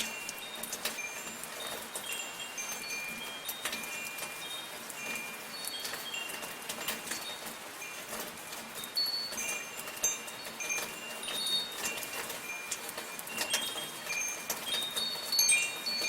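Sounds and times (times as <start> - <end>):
soft falling rain: 0.0 - 16.0
wind chimes tinkling: 0.0 - 16.0.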